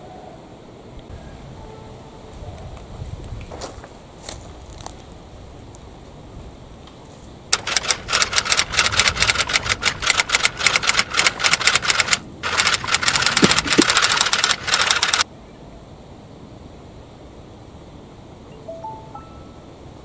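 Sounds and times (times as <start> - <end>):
train wheels clacking on rails: 7.5 - 15.2.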